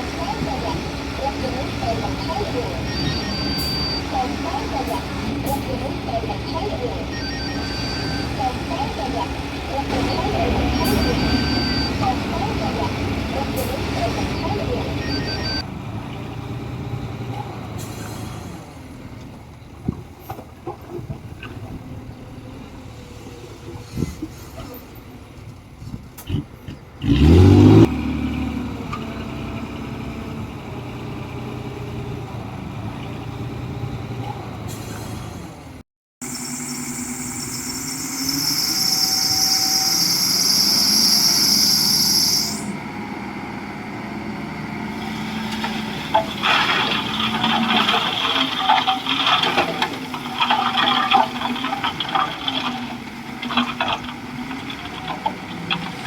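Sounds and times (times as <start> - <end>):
machinery clanking and rattling: 0.0 - 15.7, 44.8 - 56.0
diesel engine revving: 0.0 - 56.0.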